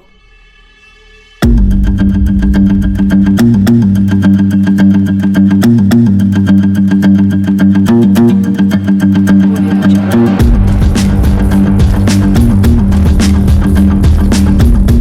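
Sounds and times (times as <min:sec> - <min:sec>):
bass line: 0:01.4 - 0:06.6, 0:07.2 - 0:15.0
guitar music over a beat: 0:01.4 - 0:15.0.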